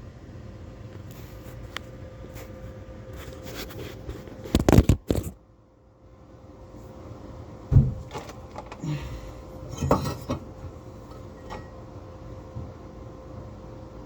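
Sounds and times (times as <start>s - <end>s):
faint steady hum: 0.0s - 14.0s
heavy thump: 7.7s - 8.2s.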